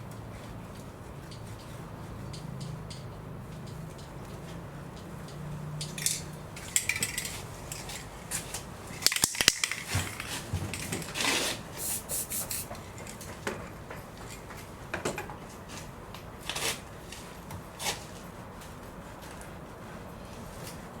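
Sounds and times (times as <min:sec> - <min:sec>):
hissing sprays of cleaner: 0:11.2 - 0:12.8.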